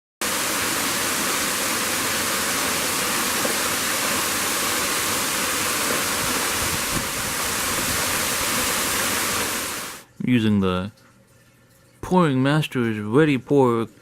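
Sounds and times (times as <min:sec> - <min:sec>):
steady hiss: 0:00.2 - 0:10.0.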